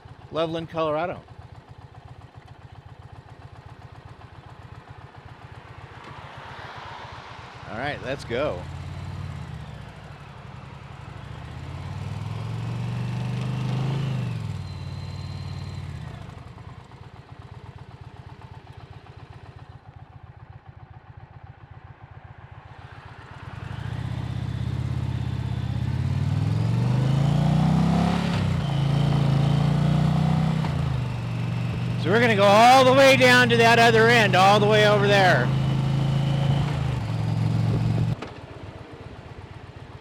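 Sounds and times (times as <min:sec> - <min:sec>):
motorcycle engine accelerating: 0:23.3 - 0:38.2.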